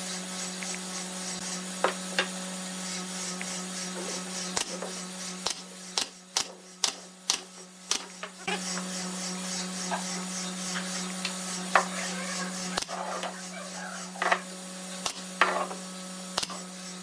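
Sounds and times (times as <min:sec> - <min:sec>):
constant low hum: 0:00.0 - 0:17.0
tool scraping wood: 0:02.9 - 0:14.5.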